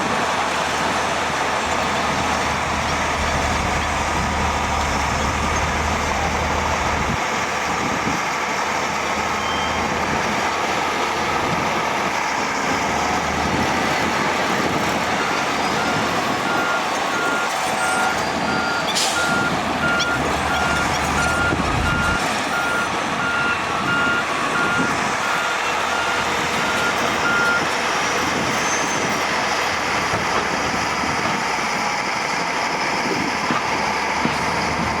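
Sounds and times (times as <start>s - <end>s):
heavy machinery engines running: 0.0s - 35.0s
reversing alarm beeping: 15.7s - 27.7s.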